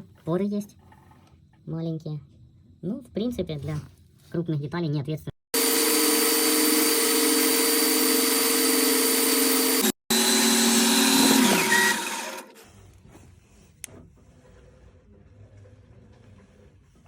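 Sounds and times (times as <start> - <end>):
lathe motor whining and winding down: 5.6 - 12.6.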